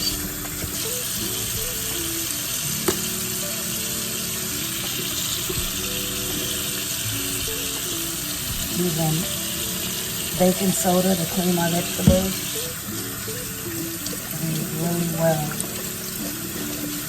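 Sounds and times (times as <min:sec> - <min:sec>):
soft background music: 0:00.0 - 0:17.0
tap running into sink: 0:02.8 - 0:03.2, 0:04.8 - 0:07.6, 0:10.4 - 0:12.6.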